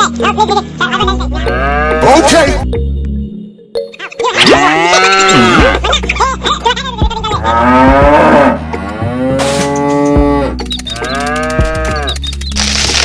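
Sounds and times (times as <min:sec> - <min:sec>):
cow mooing: 0:01.5 - 0:02.1, 0:04.6 - 0:05.6, 0:07.4 - 0:12.1.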